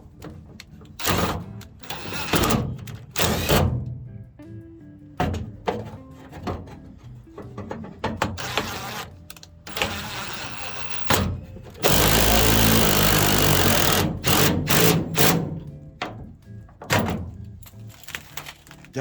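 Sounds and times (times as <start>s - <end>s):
knocks and clunks: 0.0s - 4.1s, 5.2s - 8.9s, 9.7s - 17.7s
background music: 0.0s - 19.0s
power tool running: 1.0s - 3.7s, 8.4s - 9.1s, 9.7s - 15.5s.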